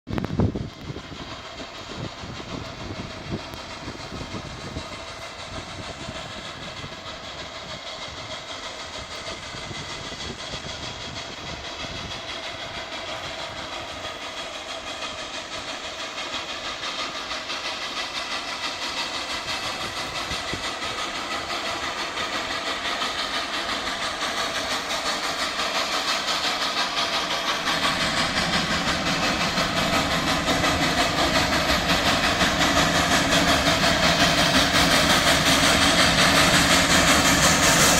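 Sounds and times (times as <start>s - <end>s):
train wheels rolling on rails: 0.1s - 37.9s.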